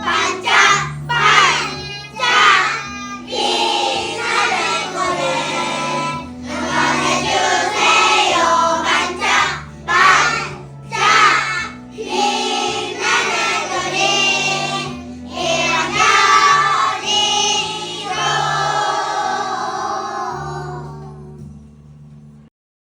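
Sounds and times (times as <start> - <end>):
children singing: 0.0 - 21.4
instrumental backing track: 0.0 - 22.4.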